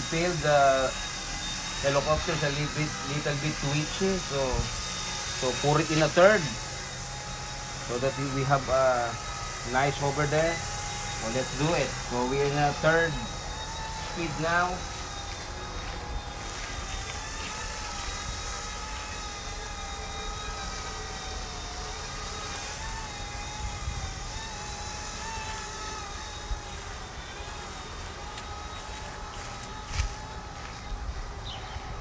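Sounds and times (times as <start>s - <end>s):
model helicopter motor whine: 0.0s - 32.0s
wind rumble on microphone: 23.5s - 24.5s.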